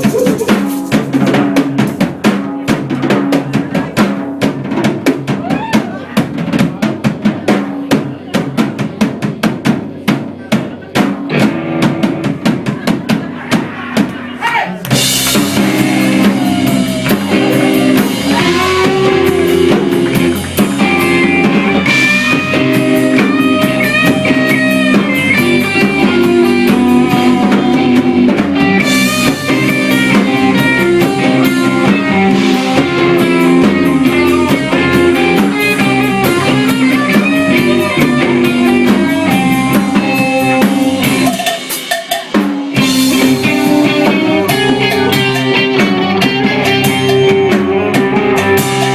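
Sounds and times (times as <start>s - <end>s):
bass guitar: 0.0s - 48.9s
drum kit beat: 0.0s - 48.9s
electric guitar lead: 11.3s - 13.6s, 14.9s - 41.9s, 42.6s - 48.9s.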